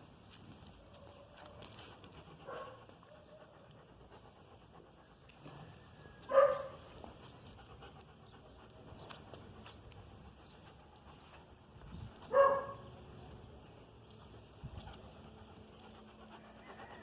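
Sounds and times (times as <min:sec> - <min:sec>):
dog barking: 0:02.4 - 0:03.3, 0:06.3 - 0:06.8, 0:12.3 - 0:12.9.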